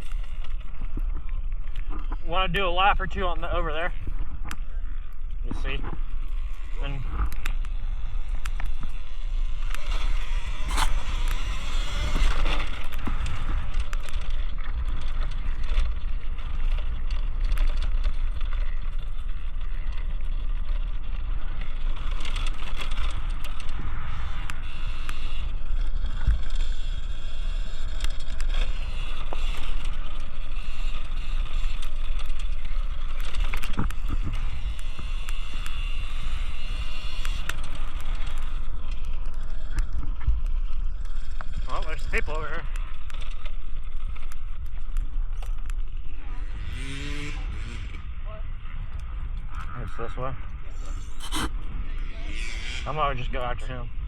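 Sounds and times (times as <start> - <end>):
wind rumble on microphone: 0.0 - 41.7
electric motor whine: 6.0 - 14.2.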